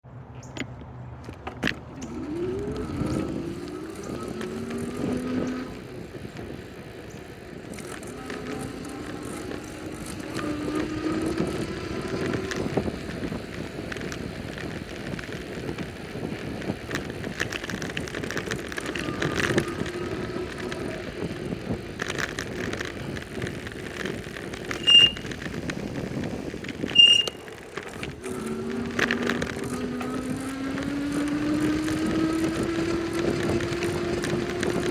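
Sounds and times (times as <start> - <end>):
rushing wind: 0.1 - 34.9
engine-like whines: 0.2 - 34.9
bicycle tyre noise: 1.2 - 34.9
short high beeps: 24.8 - 25.2, 26.9 - 27.4.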